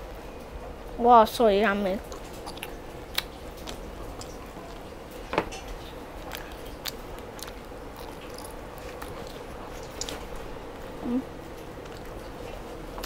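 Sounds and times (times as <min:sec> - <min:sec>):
person chewing and biting: 0:02.1 - 0:04.9, 0:05.9 - 0:10.9.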